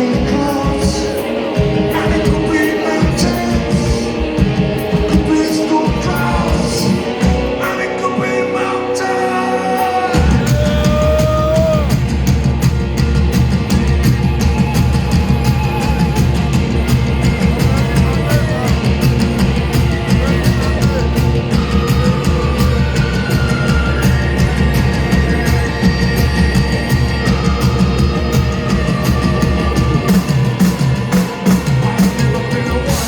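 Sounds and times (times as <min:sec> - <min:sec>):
drums: 0:00.0 - 0:33.0
live rock band playing: 0:00.0 - 0:33.0
wavering melody line: 0:06.5 - 0:32.0.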